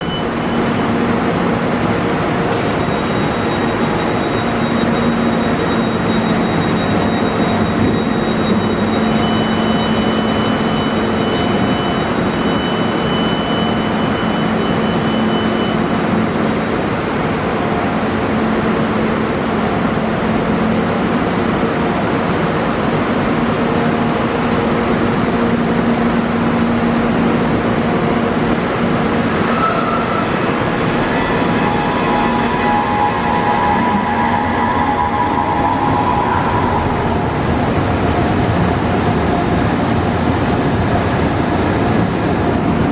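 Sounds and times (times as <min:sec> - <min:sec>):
train mechanical hum: 0:00.0 - 0:42.9
high whistling tones: 0:29.3 - 0:37.8.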